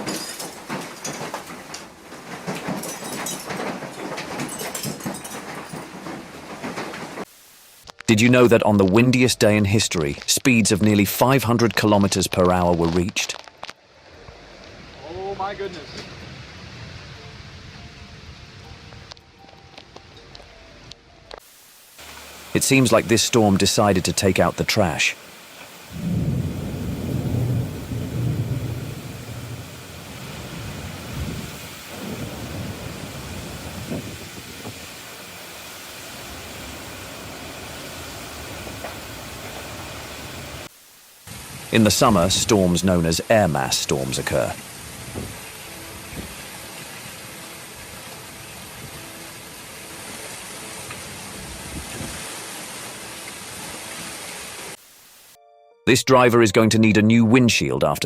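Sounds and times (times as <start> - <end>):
wind: 0.0 - 9.0, 10.0 - 54.8
rain hiss: 0.0 - 20.5, 21.3 - 55.4
low thunder rumble: 25.8 - 34.9.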